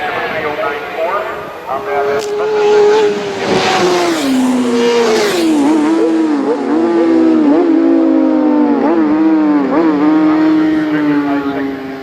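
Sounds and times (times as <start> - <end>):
rush of passing noise: 0.0 - 8.8
motorcycle engine at high revs: 1.7 - 12.0.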